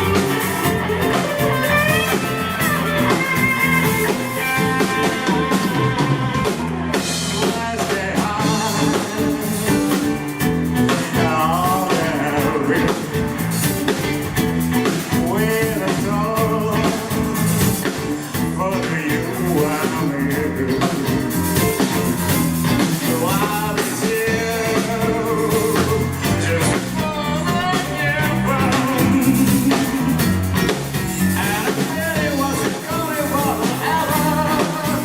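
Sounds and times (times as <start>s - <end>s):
live rock band playing: 0.0s - 35.0s
person singing: 0.0s - 35.0s.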